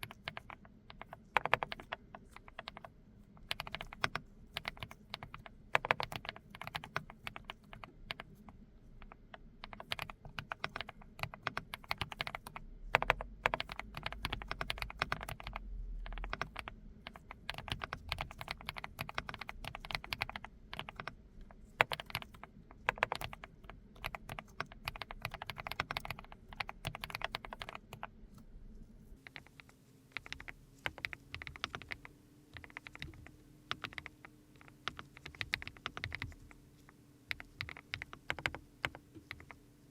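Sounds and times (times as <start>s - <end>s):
faint hum: 0.0s - 39.9s
mechanical keyboard key clacks: 9.1s - 21.1s
background hiss: 24.7s - 39.9s.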